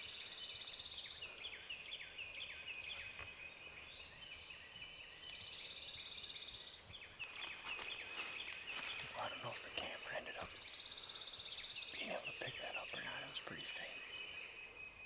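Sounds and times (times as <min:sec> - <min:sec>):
whistled birdsong notes: 0:00.0 - 0:15.0
dry rapid bird trill: 0:09.0 - 0:15.0.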